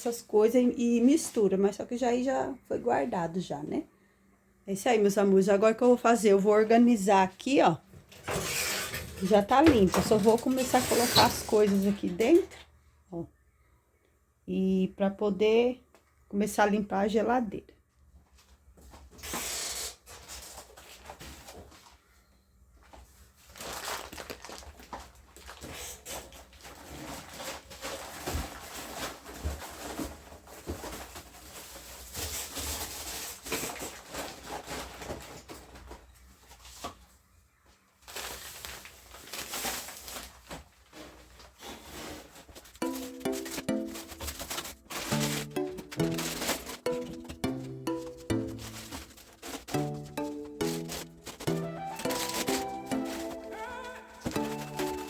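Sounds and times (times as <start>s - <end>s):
groceries rustling and knocking: 7.4s - 12.8s, 18.4s - 22.1s, 22.8s - 55.0s.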